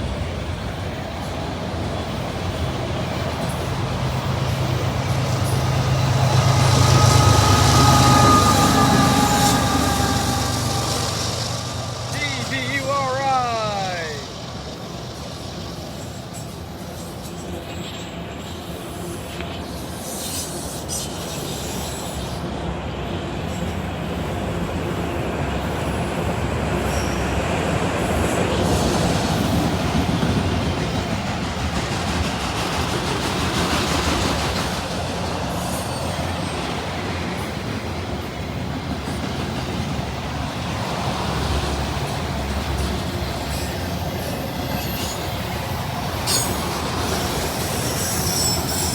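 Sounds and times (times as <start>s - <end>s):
high wheel squeal: 5.2s - 12.5s, 42.7s - 48.9s
train wheels clicking over rail joints: 28.5s - 48.9s.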